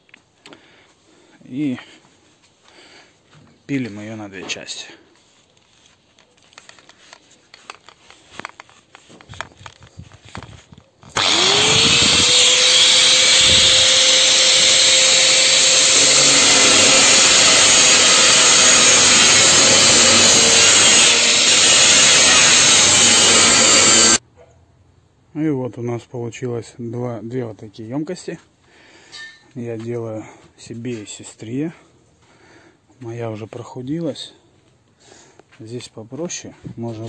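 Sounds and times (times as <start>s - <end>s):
power tool cutting metal: 11.1s - 24.2s.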